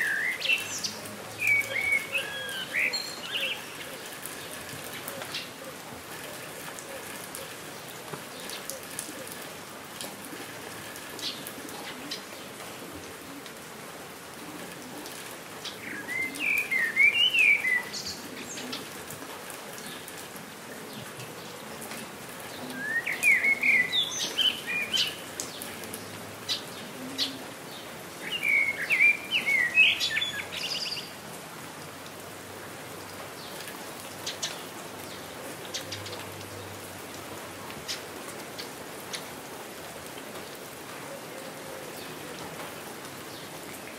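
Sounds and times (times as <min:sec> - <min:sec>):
songbird singing: 0:00.0 - 0:05.7, 0:15.6 - 0:19.0, 0:22.5 - 0:31.2, 0:33.3 - 0:39.4
steady rain falling: 0:00.0 - 0:43.9.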